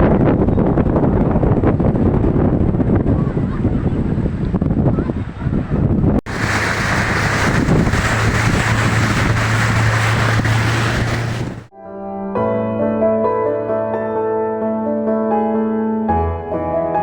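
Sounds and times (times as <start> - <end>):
wind buffeting microphone: 0.0 - 11.7
motorboat engine humming: 6.3 - 11.7.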